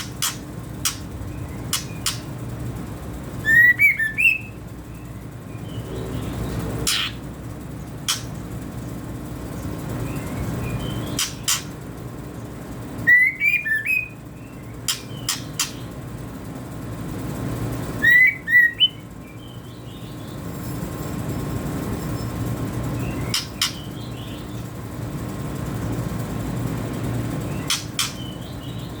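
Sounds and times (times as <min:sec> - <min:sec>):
sharp clicks: 0:00.0 - 0:01.1
young bird chirping: 0:00.0 - 0:02.4, 0:03.4 - 0:07.2
steady low hum: 0:00.0 - 0:29.0.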